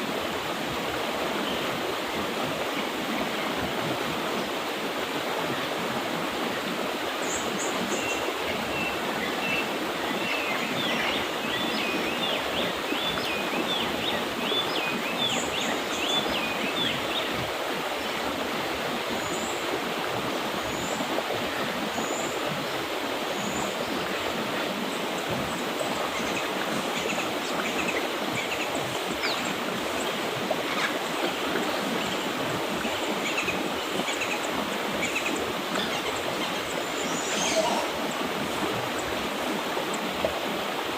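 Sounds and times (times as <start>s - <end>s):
river water rushing: 0.0s - 40.9s
small birds singing: 25.2s - 39.2s.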